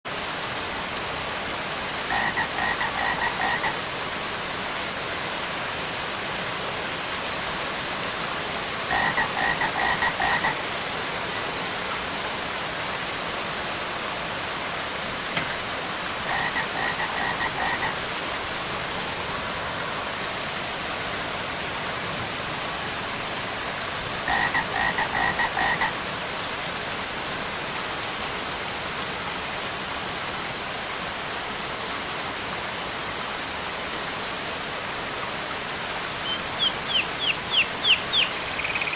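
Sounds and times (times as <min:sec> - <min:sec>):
steady rain falling: 0:00.1 - 0:38.9
frog croaking: 0:00.4 - 0:10.6, 0:16.2 - 0:18.0, 0:24.3 - 0:26.0.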